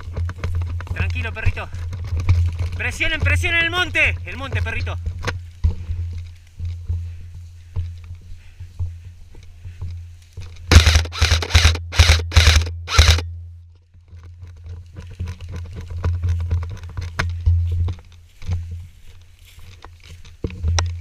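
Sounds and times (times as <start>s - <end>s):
footsteps through brush: 0.0s - 21.0s
airsoft gun bursts: 10.7s - 13.2s.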